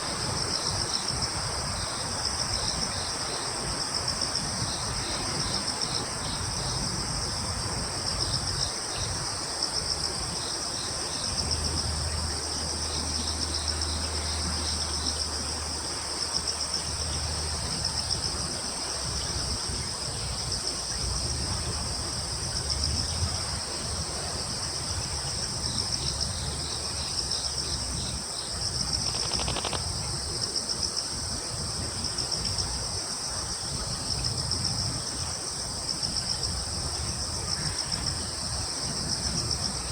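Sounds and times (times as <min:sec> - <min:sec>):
crickets trilling: 0:00.0 - 0:39.9
insect pulsed chirps: 0:25.6 - 0:30.8.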